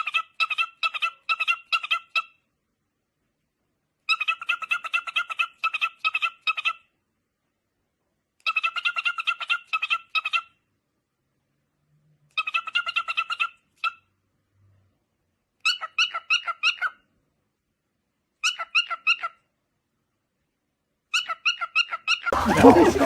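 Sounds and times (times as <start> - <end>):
animal high-pitched calls: 21.2 - 23.0.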